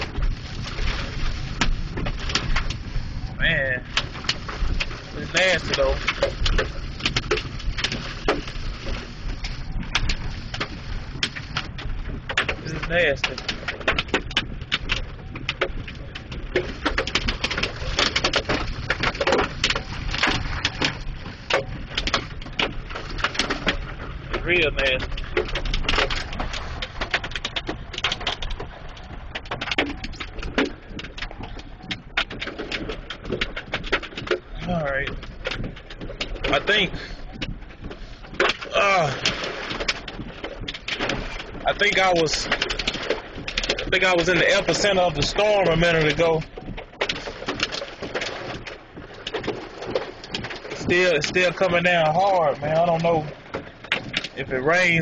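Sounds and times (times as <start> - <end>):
hailstones knocking on a car: 0.0 - 55.0
wind and rain rumble: 0.0 - 55.0.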